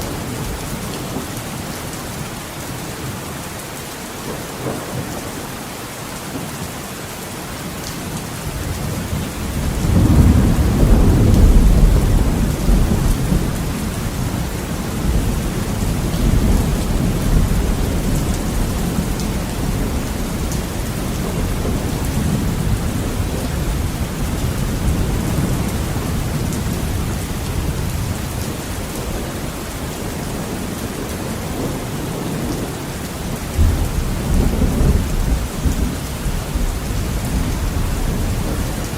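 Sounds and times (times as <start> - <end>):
heavy rain: 0.0 - 38.9
thunder rumbling: 8.4 - 38.9.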